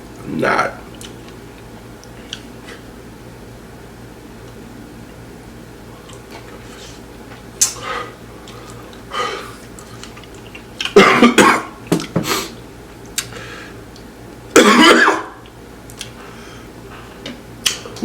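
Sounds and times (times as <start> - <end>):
man coughing: 11.0 - 11.8, 14.5 - 15.4.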